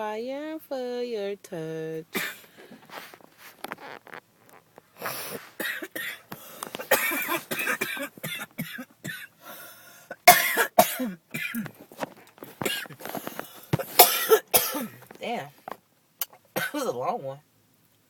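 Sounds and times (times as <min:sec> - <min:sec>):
person coughing hard: 0:02.2 - 0:02.6, 0:05.0 - 0:09.4, 0:10.1 - 0:11.8, 0:12.5 - 0:15.2, 0:16.6 - 0:17.0.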